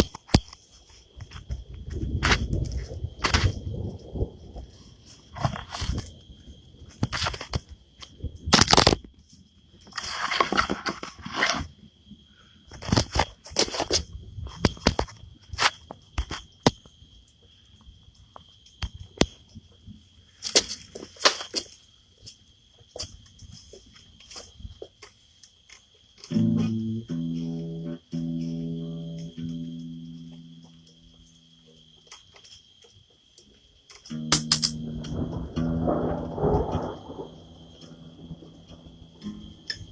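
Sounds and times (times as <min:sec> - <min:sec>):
short rustling noises: 0:09.8 - 0:11.8.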